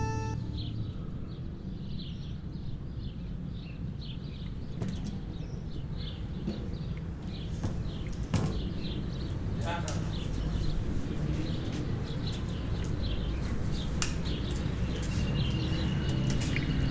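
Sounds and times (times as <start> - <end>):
small birds chirping: 0.0 - 0.8, 8.8 - 16.9.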